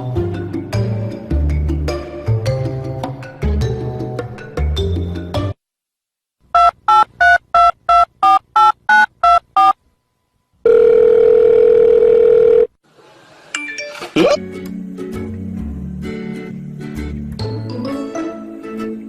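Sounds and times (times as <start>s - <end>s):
steady telephone tone: 10.6s - 12.8s.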